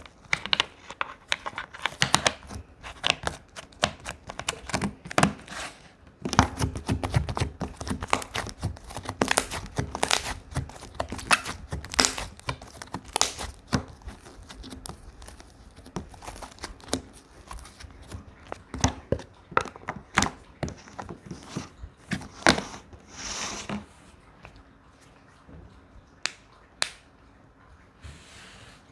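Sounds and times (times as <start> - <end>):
crinkly tearing sounds: 6.6 - 19.1.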